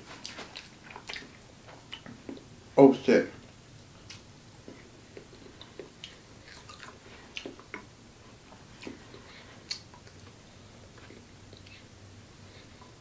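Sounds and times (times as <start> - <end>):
person chewing noodles: 0.2 - 2.5, 4.0 - 11.9.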